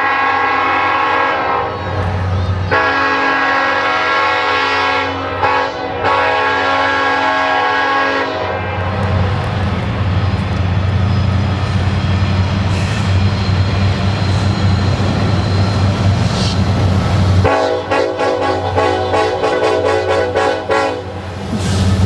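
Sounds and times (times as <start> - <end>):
locomotive horn: 0.0 - 2.0, 2.6 - 9.2, 17.4 - 21.3
train rolling past: 0.0 - 22.0.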